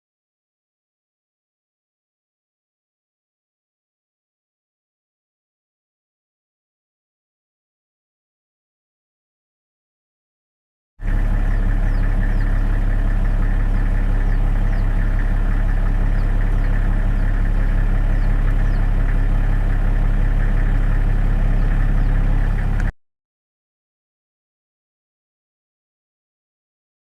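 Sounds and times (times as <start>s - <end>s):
engine idling: 11.0s - 22.9s.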